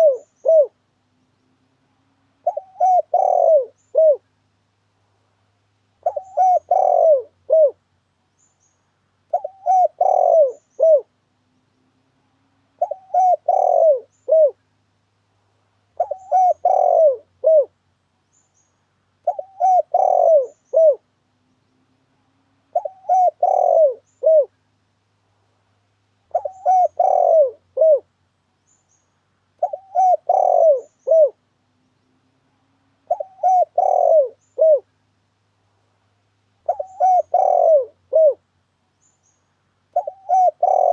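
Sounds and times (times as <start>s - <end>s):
dove cooing: 0.0s - 0.8s, 2.4s - 4.3s, 6.0s - 7.8s, 9.3s - 11.2s, 12.8s - 14.6s, 16.0s - 17.8s, 19.2s - 21.1s, 22.7s - 24.6s, 26.3s - 28.1s, 29.6s - 31.4s, 33.0s - 34.9s, 36.6s - 38.4s, 39.9s - 40.9s.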